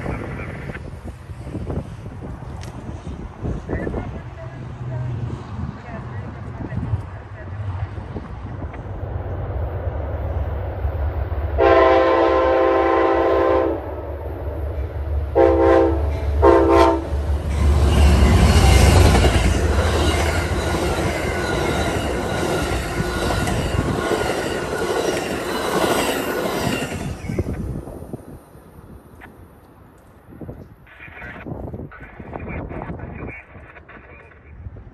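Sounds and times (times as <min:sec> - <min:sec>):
train engine rumble: 0:00.0 - 0:34.9
locomotive horn blasts: 0:11.6 - 0:13.9, 0:15.3 - 0:22.1
train wheels clattering on rails: 0:14.2 - 0:27.6.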